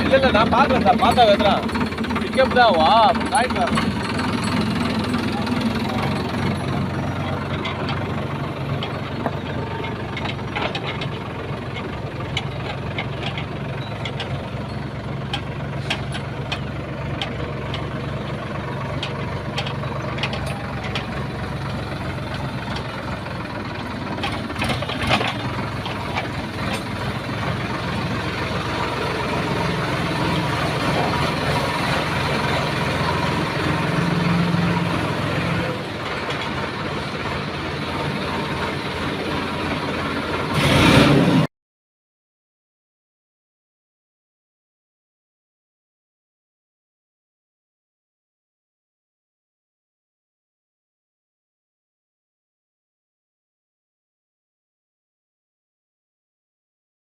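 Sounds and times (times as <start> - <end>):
tractor engine running: 0.0 - 41.5
sharp knocks and rattles: 0.2 - 33.3.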